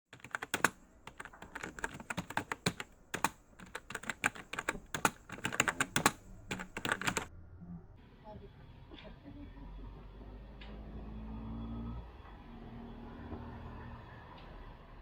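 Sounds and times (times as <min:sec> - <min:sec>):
sharp clicks: 0:00.2 - 0:07.3.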